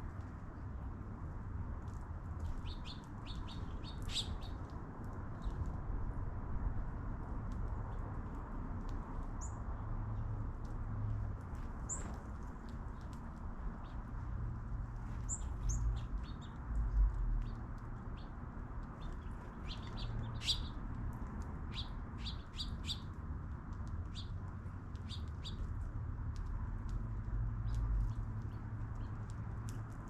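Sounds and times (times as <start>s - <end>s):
small birds chirping: 2.4s - 5.7s, 9.2s - 10.3s, 11.7s - 14.3s, 15.0s - 25.8s, 27.5s - 30.0s.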